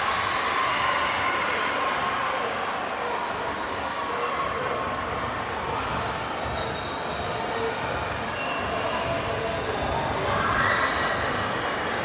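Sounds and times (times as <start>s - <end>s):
large hall noise: 0.0s - 12.0s.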